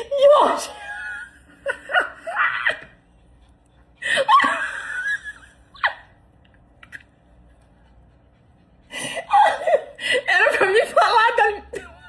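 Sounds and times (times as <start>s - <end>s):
person laughing: 4.0s - 6.1s.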